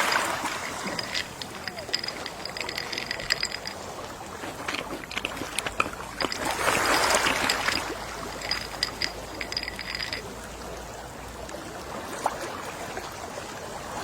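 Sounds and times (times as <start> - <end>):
sea waves washing in: 0.0 - 2.7.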